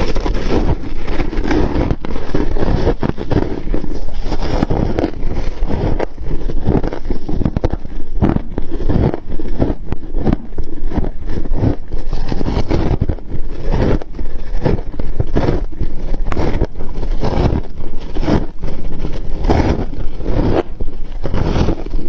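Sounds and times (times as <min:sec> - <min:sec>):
frost being chewed: 0:00.0 - 0:22.0.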